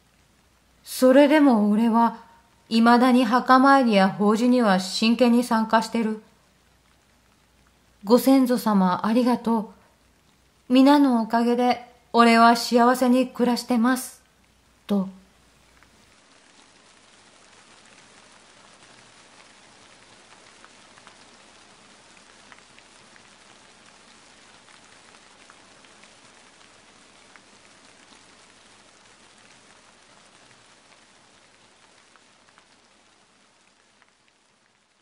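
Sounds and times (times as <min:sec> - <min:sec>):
rain falling steadily: 0:00.0 - 0:35.0
raindrops tapping: 0:11.9 - 0:35.0.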